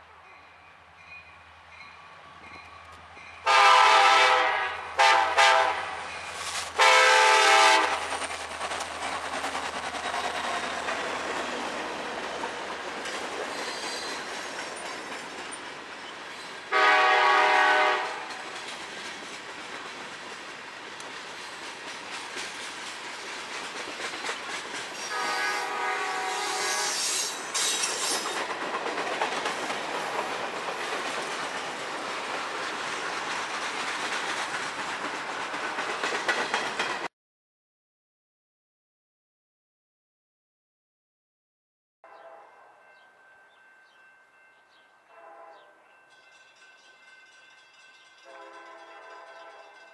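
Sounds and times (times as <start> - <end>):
freight train rumbling past: 0.0 - 37.1, 42.1 - 49.9
locomotive horn blasts: 3.4 - 6.1, 6.8 - 8.0, 16.7 - 18.2, 25.0 - 27.1, 42.0 - 42.7, 45.1 - 45.8, 48.2 - 49.8.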